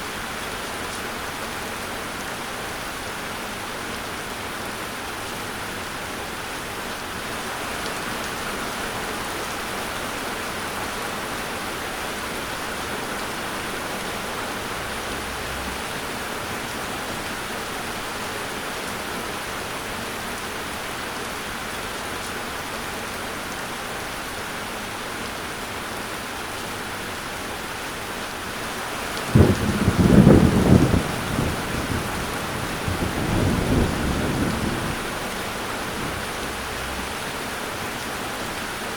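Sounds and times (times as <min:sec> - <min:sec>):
steady rain falling: 0:00.0 - 0:38.9
thunder rumbling: 0:29.3 - 0:37.3.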